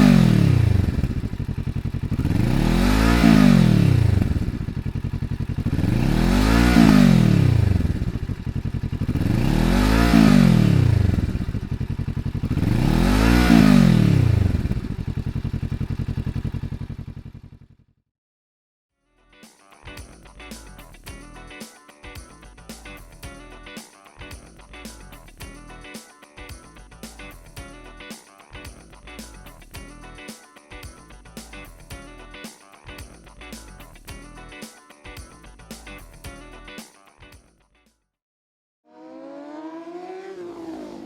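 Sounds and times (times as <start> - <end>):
motorcycle engine revving: 0.0 - 17.9, 39.0 - 41.0.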